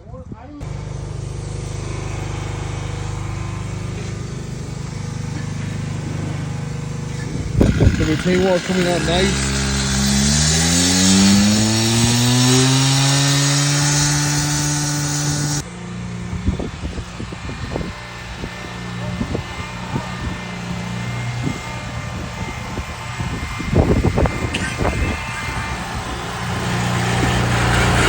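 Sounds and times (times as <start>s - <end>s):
small engine revving: 0.6s - 28.0s
knocks and scraping: 4.7s - 15.6s.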